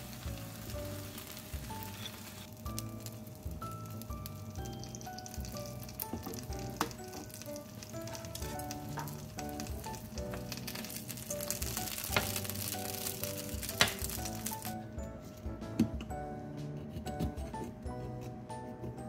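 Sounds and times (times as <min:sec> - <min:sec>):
dumplings sizzling in oil: 0:00.0 - 0:14.8
light background music: 0:00.0 - 0:19.0
oil popping: 0:04.2 - 0:14.7.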